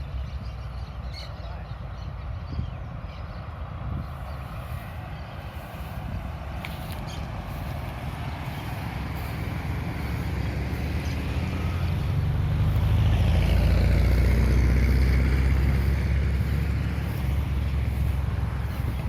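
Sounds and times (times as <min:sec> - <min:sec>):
motor vehicle driving past: 0:04.4 - 0:19.0.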